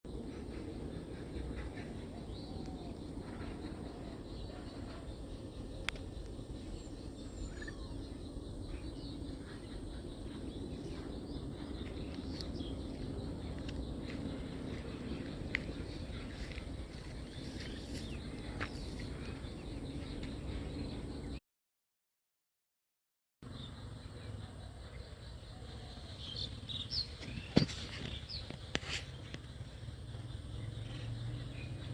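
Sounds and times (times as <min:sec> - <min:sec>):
faint bird chirps: 0:00.1 - 0:21.4
low rumble: 0:00.1 - 0:21.4
low steady hum: 0:00.1 - 0:21.4.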